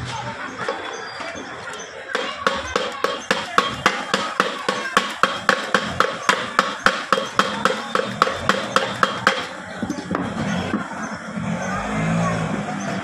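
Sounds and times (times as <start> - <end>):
hammer tapping on metal: 2.2 - 9.6.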